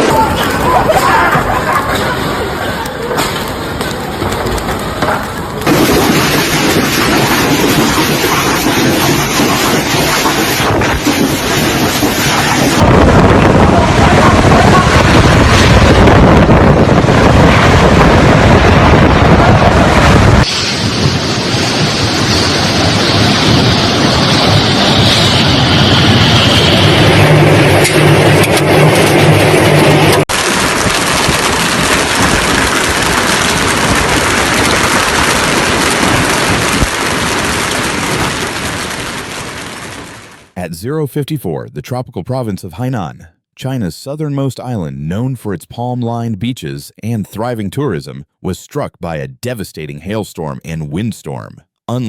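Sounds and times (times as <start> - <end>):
heavy rain pelting surfaces: 0.0 - 24.7, 28.5 - 40.6
wind buffeting microphone: 5.6 - 39.7.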